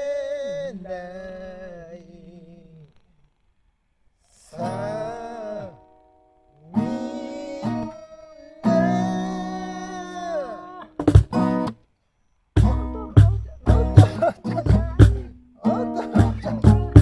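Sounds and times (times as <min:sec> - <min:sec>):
acoustic guitar: 0:04.3 - 0:11.9, 0:12.6 - 0:17.0
person singing: 0:04.4 - 0:05.9, 0:06.7 - 0:10.9, 0:12.6 - 0:17.0.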